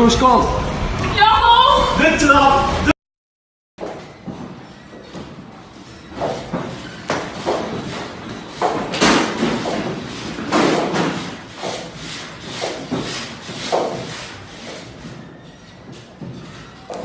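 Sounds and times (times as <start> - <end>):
objects crashing and banging: 6.0 - 15.3.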